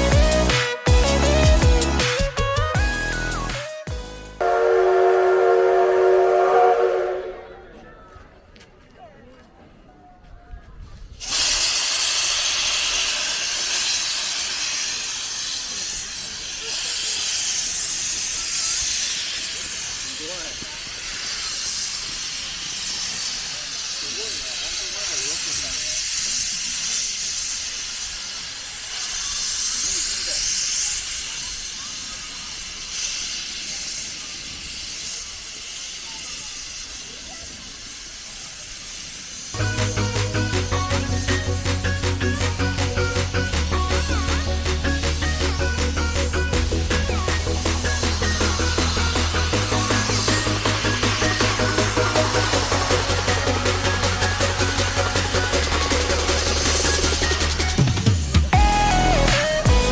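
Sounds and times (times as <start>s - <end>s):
steam locomotive hissing steam: 0.0s - 7.7s, 11.1s - 59.9s
faint voices: 4.6s - 11.3s, 27.9s - 50.2s.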